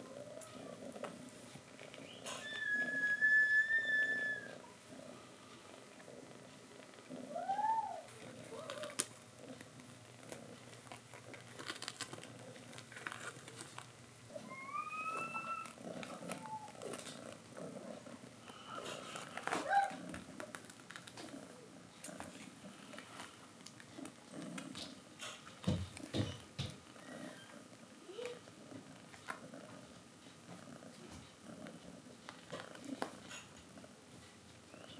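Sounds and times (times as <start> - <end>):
cats purring: 0.0 - 34.9
cat mewing: 7.2 - 9.0.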